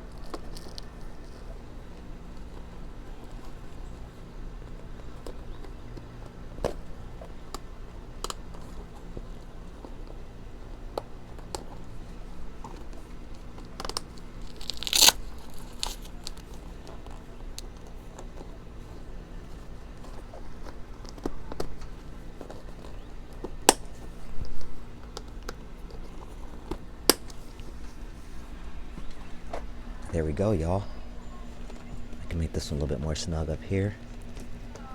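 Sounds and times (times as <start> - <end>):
ripping rustle: 11.2 - 30.1.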